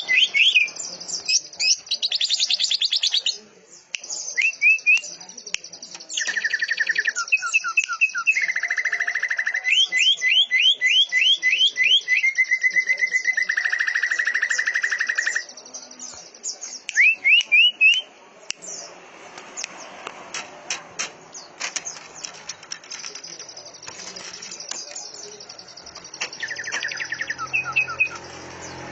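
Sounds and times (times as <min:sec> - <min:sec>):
songbirds trilling: 0:00.0 - 0:18.0, 0:18.6 - 0:28.9
sharp bird chips: 0:19.6 - 0:28.9
high bird chattering: 0:20.4 - 0:28.8.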